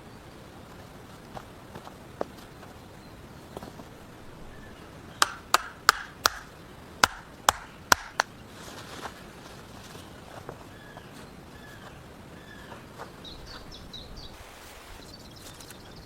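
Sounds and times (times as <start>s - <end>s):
wood being chopped: 5.2s - 8.3s.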